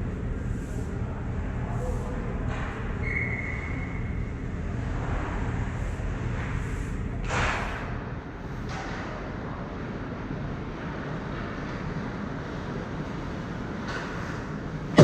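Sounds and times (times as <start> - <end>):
low arena rumble: 0.0 - 13.8.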